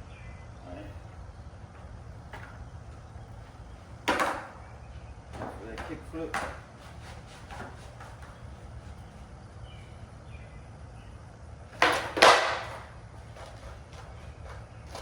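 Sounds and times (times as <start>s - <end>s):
skateboard kickflip clacks: 4.0s - 4.6s, 11.7s - 13.7s.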